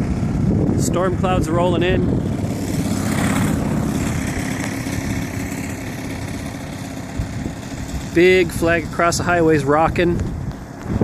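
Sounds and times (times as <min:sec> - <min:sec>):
model plane engine running: 0:00.0 - 0:11.0.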